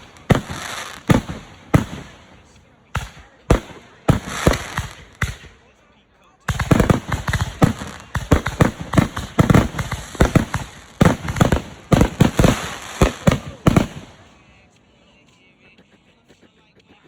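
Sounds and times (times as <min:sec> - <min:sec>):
fireworks bangs: 0:00.0 - 0:05.7, 0:06.5 - 0:14.5.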